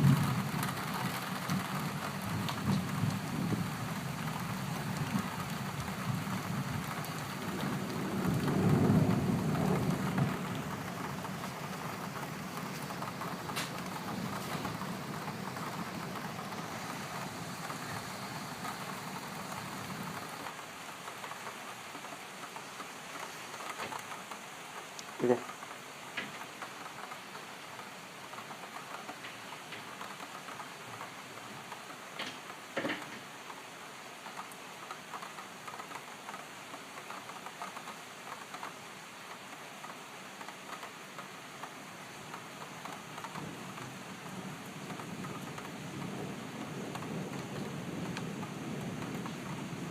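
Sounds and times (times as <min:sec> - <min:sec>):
thunder rumbling: 0:00.0 - 0:20.6, 0:43.3 - 0:49.9
rain falling: 0:00.0 - 0:49.9.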